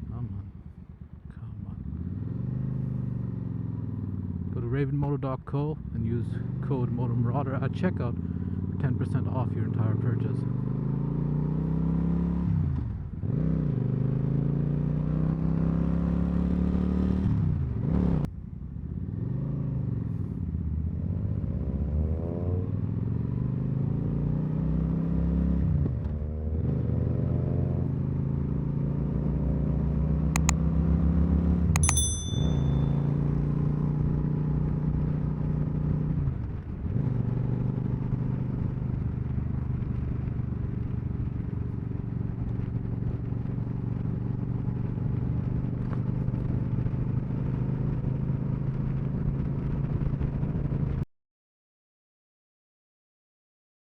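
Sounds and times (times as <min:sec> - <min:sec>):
motorcycle engine revving: 0:01.7 - 0:04.6
sharp clicks: 0:30.4 - 0:30.6, 0:31.8 - 0:32.1.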